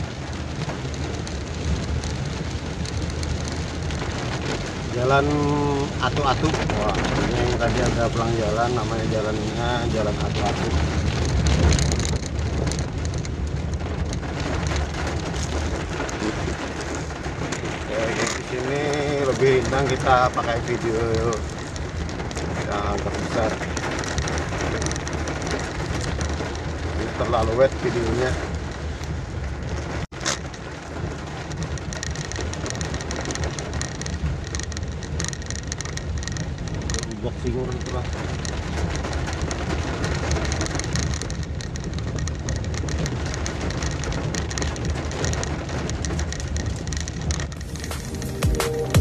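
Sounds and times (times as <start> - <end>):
rain ticking on vehicle: 0.0 - 49.0
vehicle engine and road rumble: 0.0 - 49.0.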